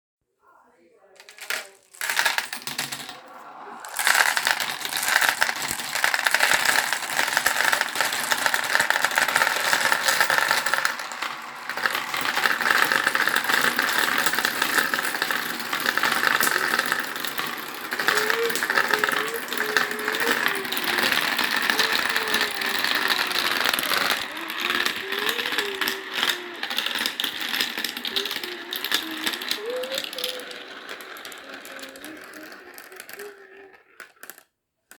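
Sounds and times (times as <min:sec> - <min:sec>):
marbles rattling through a run: 0:01.2 - 0:34.4.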